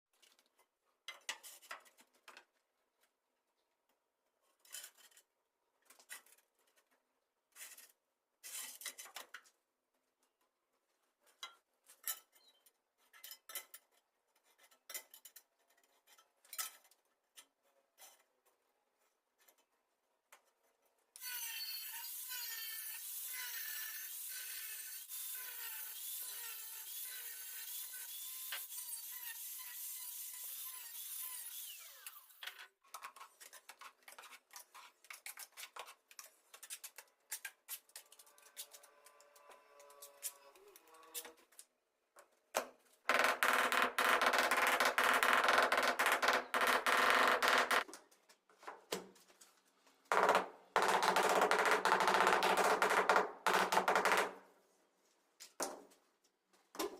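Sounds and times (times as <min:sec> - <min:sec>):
scraping and rubbing of tile: 0:04.4 - 0:09.4, 0:11.2 - 0:20.9, 0:32.8 - 0:40.4.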